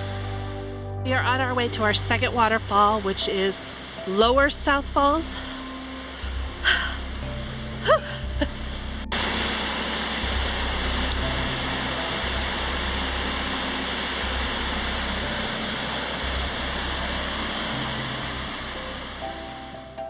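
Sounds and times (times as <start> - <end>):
soft background music: 0.0 - 20.0
waterfall rushing: 1.6 - 20.0.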